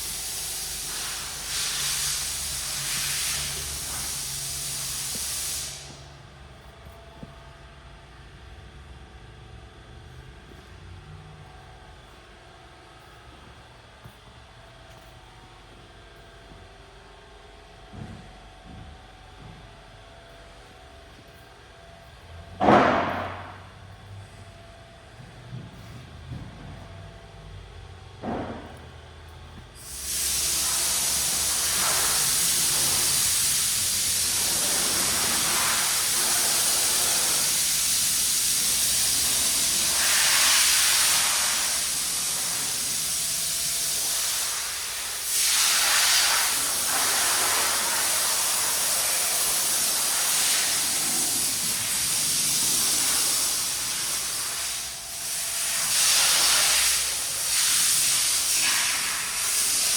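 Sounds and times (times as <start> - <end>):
loud hissing rush: 0.0 - 6.1, 29.8 - 59.9.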